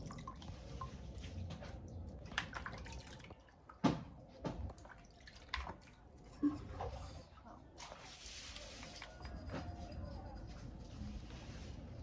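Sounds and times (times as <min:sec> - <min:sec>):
faint low hum: 0:06.1 - 0:12.0.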